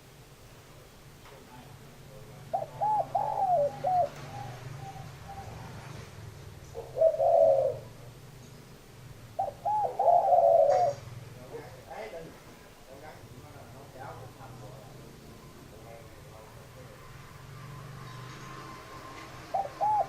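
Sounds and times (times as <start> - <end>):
dove cooing: 2.1 - 8.2, 9.2 - 11.8, 19.0 - 20.0.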